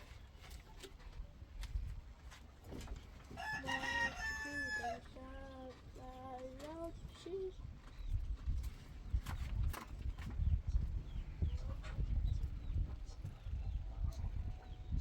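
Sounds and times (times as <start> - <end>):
rooster crowing: 3.4 - 5.0.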